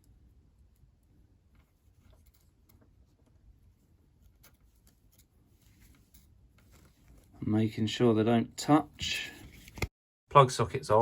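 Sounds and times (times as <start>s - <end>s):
wires being twisted by hand: 0.0s - 7.4s.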